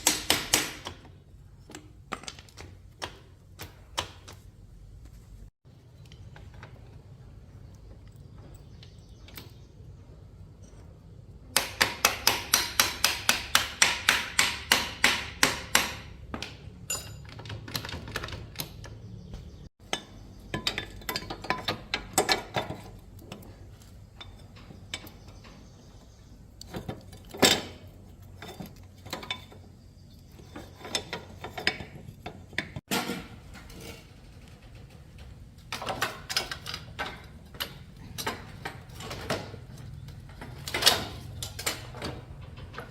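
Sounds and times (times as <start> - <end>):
metal tools clinking: 16.8 - 19.0, 19.8 - 25.6.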